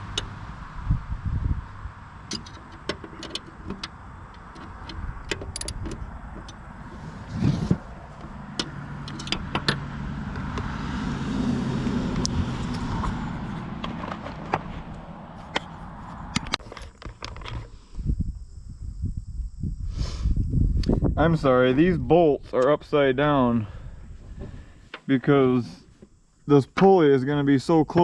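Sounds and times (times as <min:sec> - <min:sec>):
low engine hum: 0:00.0 - 0:16.7
metallic clicks of hand tools: 0:08.6 - 0:09.8.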